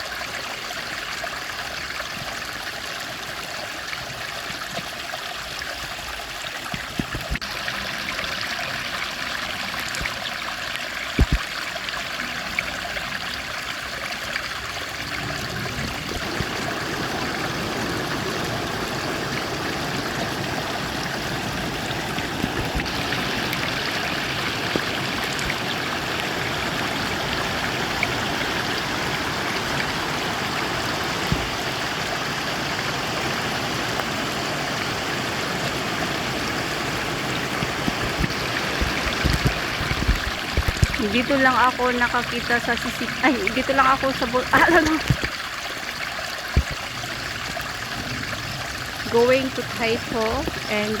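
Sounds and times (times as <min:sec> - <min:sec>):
stream water rushing: 0:00.0 - 0:51.0.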